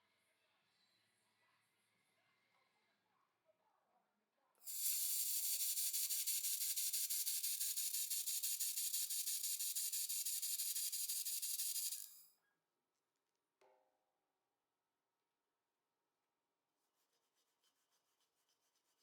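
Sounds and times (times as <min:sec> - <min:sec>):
laser welder pulsing hiss: 0:04.6 - 0:12.2.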